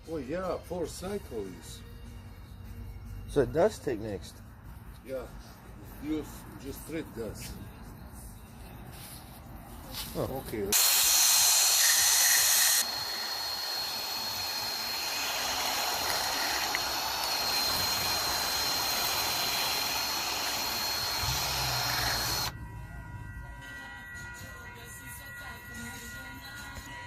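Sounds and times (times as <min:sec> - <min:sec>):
high-pressure air hiss: 0:10.7 - 0:22.5
thin high whistle: 0:10.8 - 0:22.6.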